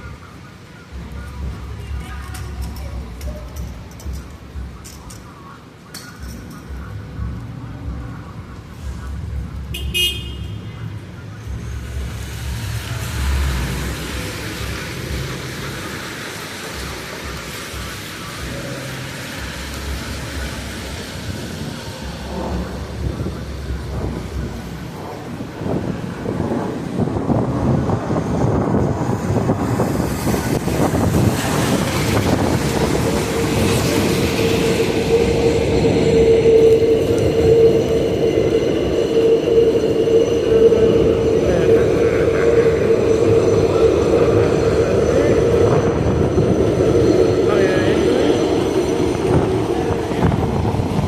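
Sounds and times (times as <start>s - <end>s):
traffic hiss: 0.0s - 51.0s
vehicle rumbling low: 0.0s - 51.0s
train whine: 11.1s - 51.0s.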